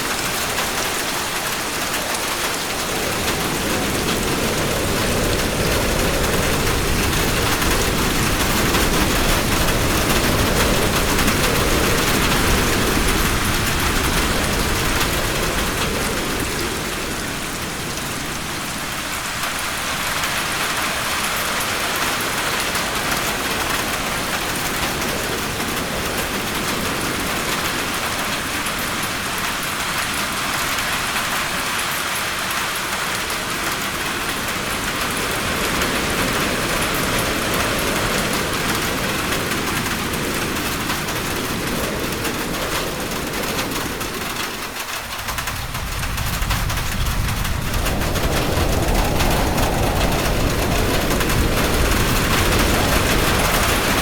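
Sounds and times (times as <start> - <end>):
heavy rain falling: 0.0 - 54.0
low rumble: 43.2 - 54.0.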